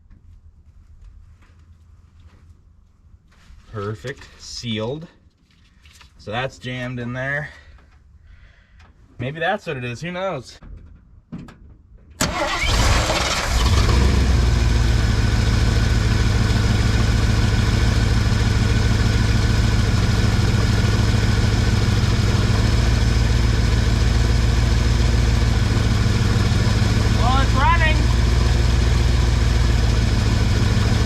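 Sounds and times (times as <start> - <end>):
truck engine starting and idling: 12.2 - 31.0.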